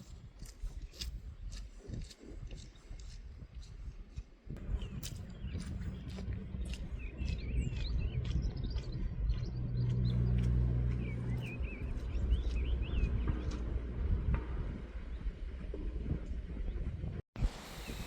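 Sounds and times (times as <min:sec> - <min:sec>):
low rumble: 0:04.5 - 0:17.6
small songbirds chirping: 0:04.6 - 0:13.8.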